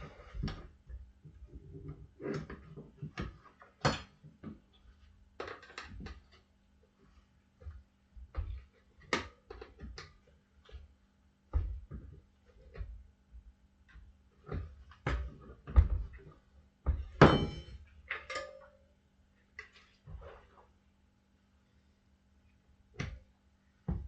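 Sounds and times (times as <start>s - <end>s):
ringing metal clank: 17.2s - 18.8s.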